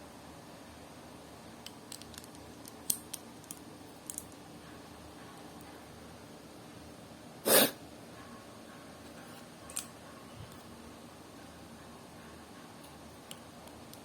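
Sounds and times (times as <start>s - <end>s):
low hum and hiss: 0.0s - 14.0s
plastic parts clicking: 1.7s - 4.4s.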